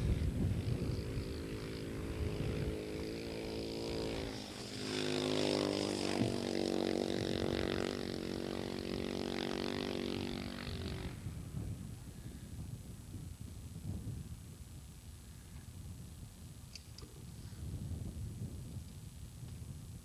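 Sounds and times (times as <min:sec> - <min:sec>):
dirt bike engine accelerating: 0:00.0 - 0:11.8.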